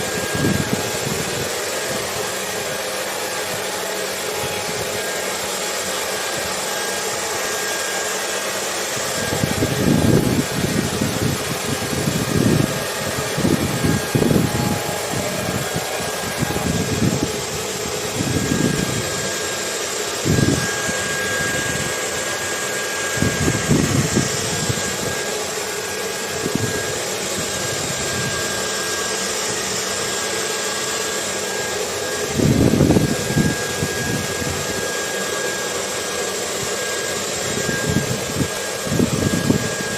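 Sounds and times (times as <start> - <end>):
wind gusts: 0.0 - 5.0, 8.8 - 28.6, 32.2 - 34.9, 37.4 - 39.9
hair dryer running: 0.0 - 39.9.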